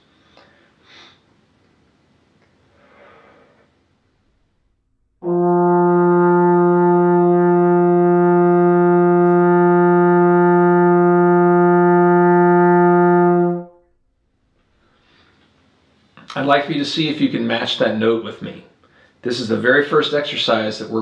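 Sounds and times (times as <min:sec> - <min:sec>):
trombone long steady note: 0:05.1 - 0:14.1.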